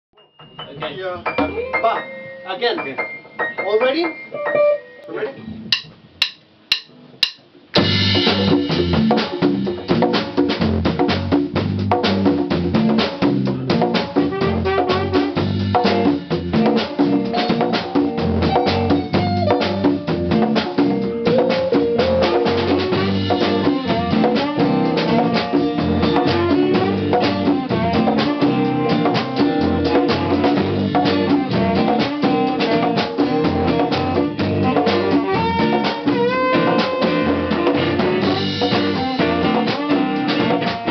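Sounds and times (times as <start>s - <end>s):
band playing swing tune: 0.2s - 40.9s
drum kit steady beat: 0.2s - 40.9s
sharp count-in clicks: 5.7s - 7.4s.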